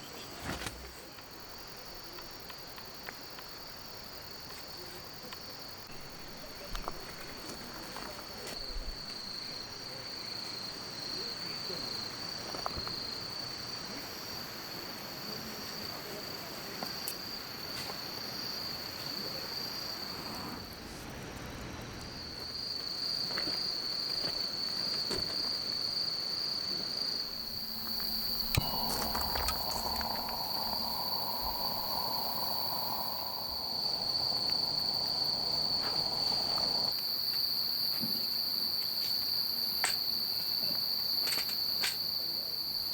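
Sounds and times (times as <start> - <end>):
insects trilling: 0.0 - 42.9
soft hiss: 26.7 - 36.9
faint clicks: 27.3 - 37.1.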